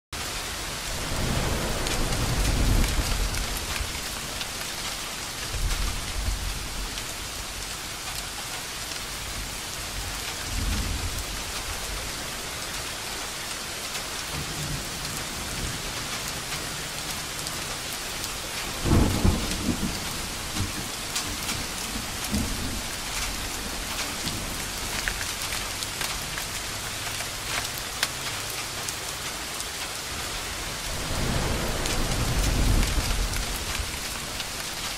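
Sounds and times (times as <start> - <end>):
steady rain: 0.1 - 34.9
thunder rumbling: 0.9 - 4.8, 18.6 - 26.4, 30.7 - 34.9.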